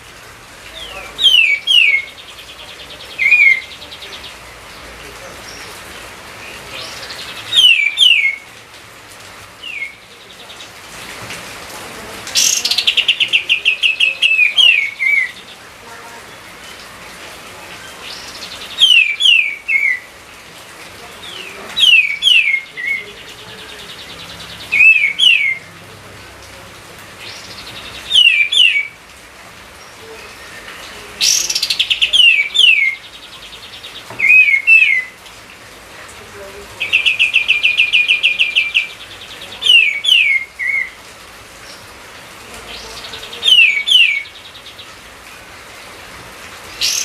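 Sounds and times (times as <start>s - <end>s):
songbird whistling: 7.5s - 8.4s, 28.1s - 28.9s, 34.2s - 35.1s.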